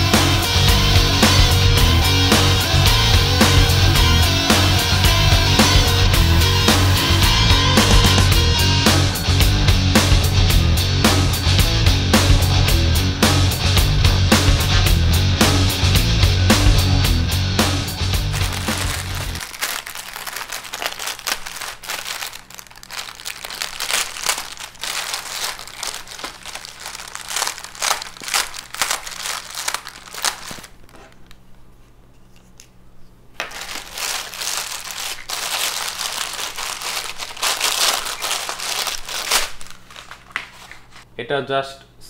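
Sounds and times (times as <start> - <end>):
packaging crinkling: 18.2 - 31.6, 33.4 - 41.1.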